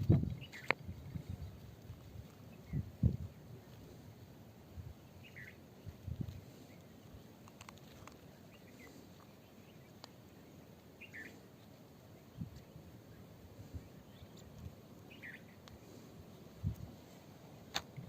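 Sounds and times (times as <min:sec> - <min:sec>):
bird chirps: 0:00.4 - 0:00.8, 0:05.2 - 0:05.6, 0:11.0 - 0:11.4, 0:15.1 - 0:15.6.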